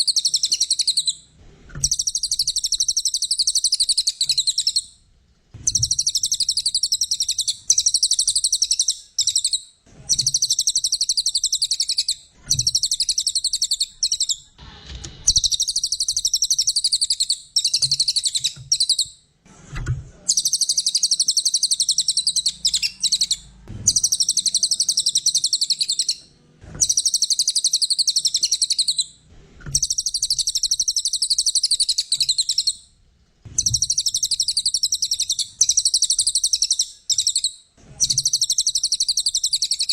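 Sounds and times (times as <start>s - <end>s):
songbird trilling song: 0.0s - 1.2s, 1.8s - 4.9s, 5.7s - 14.5s, 15.3s - 19.2s, 20.3s - 29.1s, 29.7s - 32.8s, 33.6s - 39.9s.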